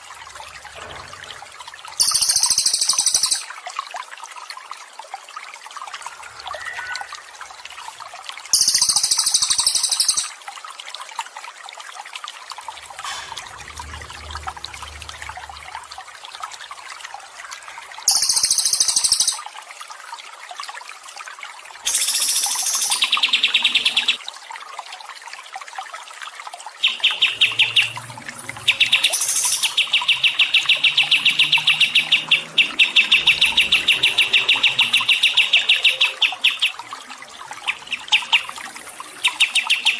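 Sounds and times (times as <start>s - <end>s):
trickling gurgling water: 0.0s - 39.9s
songbird singing: 2.0s - 3.5s, 6.4s - 7.4s, 8.6s - 10.3s, 26.8s - 36.9s, 39.2s - 39.9s.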